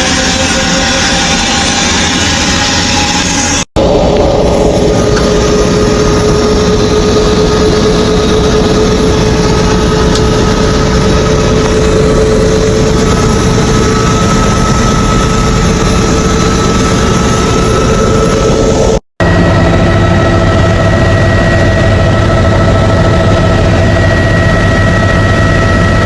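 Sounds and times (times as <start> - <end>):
helicopter engine and rotor: 0.0 - 26.0.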